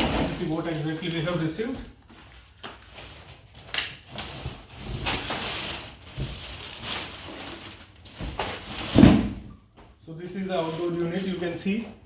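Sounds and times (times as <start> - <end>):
packaging rustling and scraping: 2.2 - 9.4.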